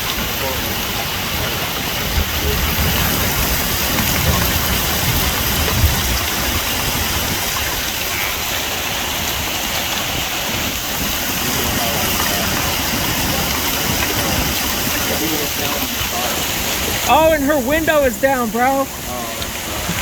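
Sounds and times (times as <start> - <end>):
heavy rain hissing: 0.0 - 20.0
low bumps: 1.5 - 8.4.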